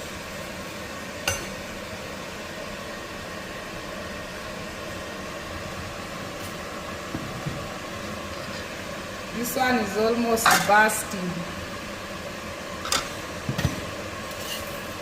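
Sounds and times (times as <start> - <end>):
flatbread hissing in a pan: 13.1 - 15.0.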